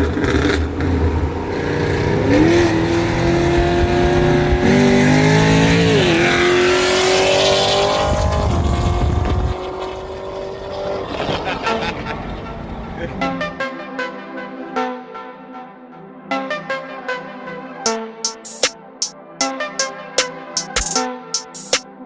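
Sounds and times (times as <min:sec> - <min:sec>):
car engine accelerating hard: 0:00.0 - 0:13.6.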